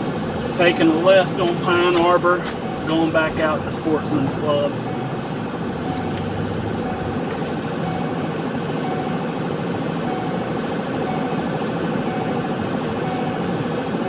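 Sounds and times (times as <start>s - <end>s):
car engine and road noise: 0.0s - 14.0s
faint high steady tone: 5.8s - 9.4s, 10.0s - 13.6s.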